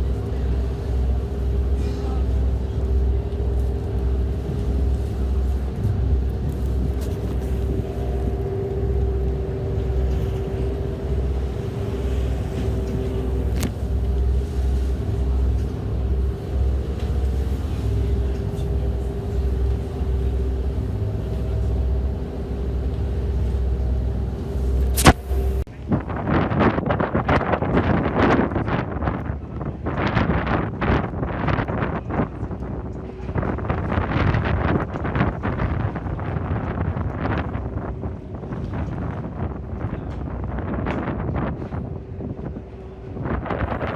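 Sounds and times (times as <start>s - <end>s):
engine running: 0.0s - 25.7s.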